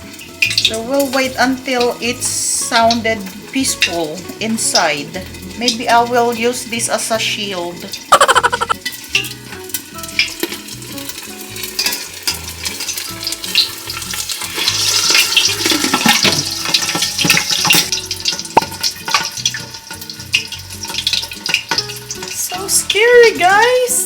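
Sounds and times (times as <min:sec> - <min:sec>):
meat deep-frying in oil: 0:00.0 - 0:24.0
spattering oil pops: 0:15.4 - 0:21.9.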